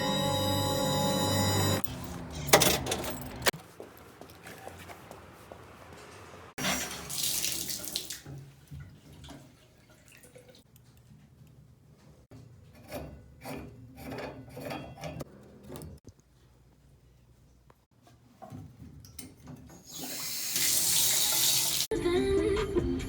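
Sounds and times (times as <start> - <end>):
water running from a tap: 6.6 - 10.6, 19.9 - 21.9.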